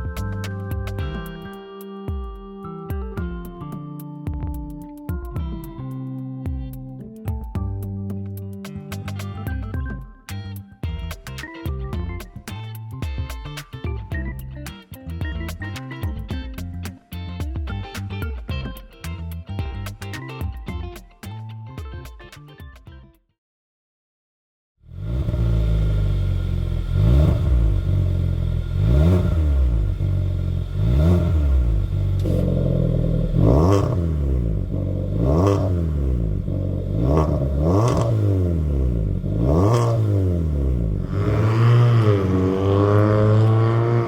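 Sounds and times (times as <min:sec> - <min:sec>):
car engine revving: 0:24.9 - 0:44.0
exhaust pops: 0:25.0 - 0:44.0.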